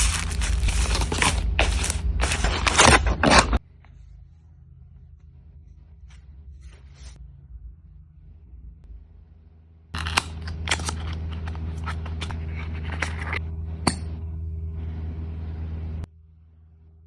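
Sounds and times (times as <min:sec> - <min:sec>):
packaging rustling and clicking: 0:00.0 - 0:03.6, 0:10.0 - 0:13.4
steady low hum: 0:00.0 - 0:17.0.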